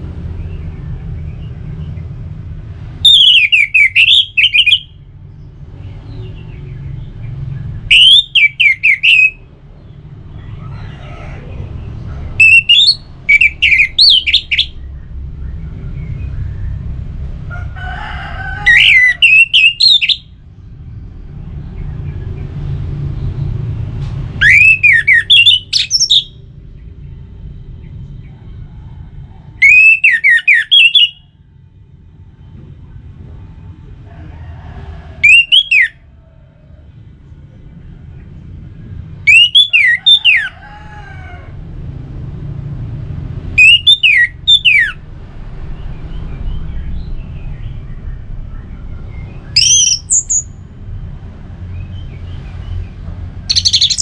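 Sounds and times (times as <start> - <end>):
thrush singing whistled phrases: 3.0 - 5.0, 7.9 - 9.4, 12.4 - 14.8, 18.7 - 20.3, 24.4 - 26.4, 29.6 - 31.3, 35.2 - 36.0, 39.2 - 40.5, 43.6 - 45.0, 49.5 - 50.6, 53.5 - 54.0.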